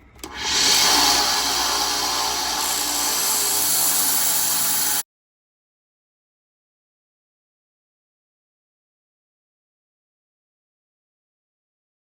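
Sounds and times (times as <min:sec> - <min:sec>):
power tool grinding antler: 0:00.2 - 0:05.0.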